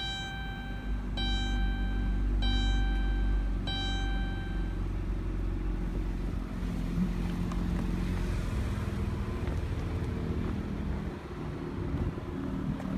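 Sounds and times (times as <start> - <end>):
chime ringing: 0.0 - 4.8
car engine idling: 0.0 - 6.4.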